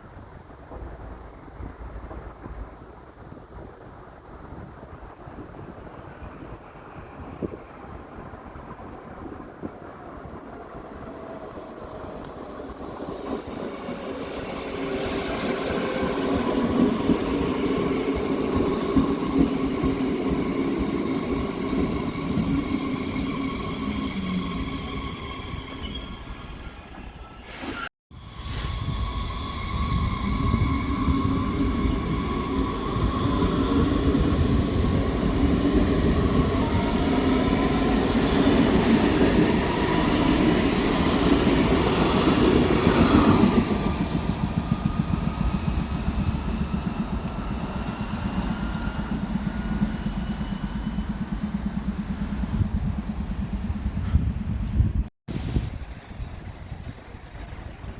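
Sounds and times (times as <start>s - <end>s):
train rumbling: 0.0s - 57.9s
train squealing: 11.2s - 54.6s.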